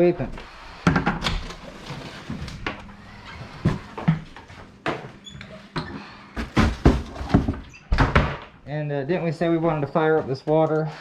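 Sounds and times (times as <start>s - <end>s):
household objects knocking: 6.4s - 8.3s.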